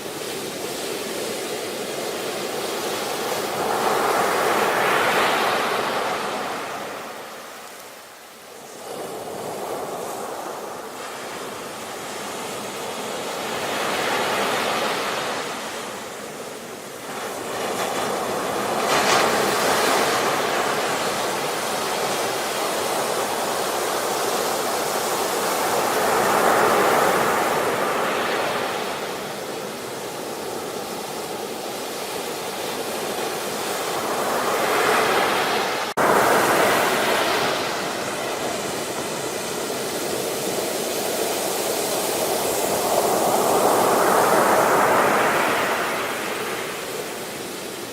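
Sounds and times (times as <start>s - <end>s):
ocean waves breaking: 0.0s - 47.9s.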